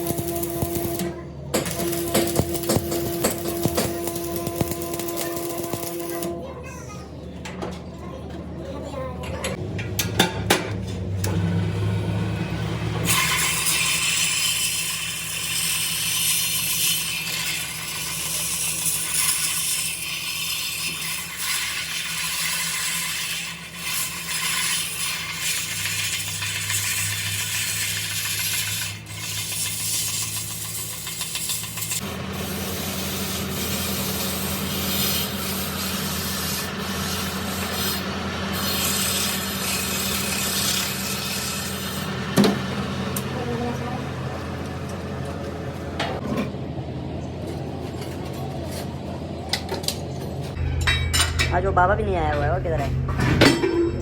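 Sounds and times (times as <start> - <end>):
power grinder on steel: 0.0 - 6.5, 11.2 - 45.0
motor hum: 0.0 - 6.6, 31.6 - 50.8.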